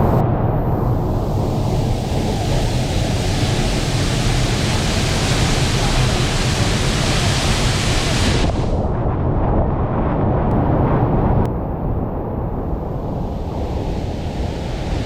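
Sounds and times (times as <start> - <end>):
waterfall roaring: 0.8 - 8.7.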